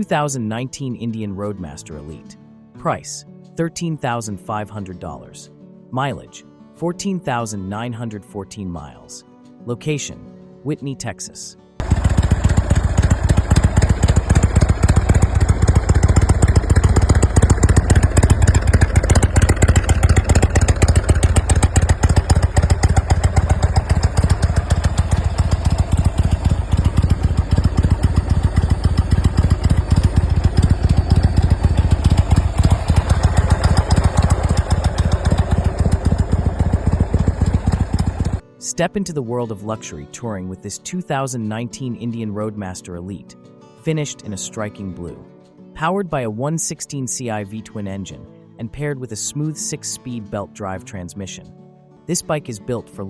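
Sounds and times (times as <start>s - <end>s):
motorcycle engine running: 11.8s - 38.4s.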